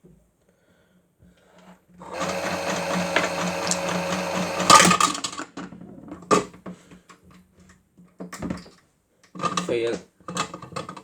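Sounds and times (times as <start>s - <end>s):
toy washing machine motor whirring: 2.0s - 5.2s.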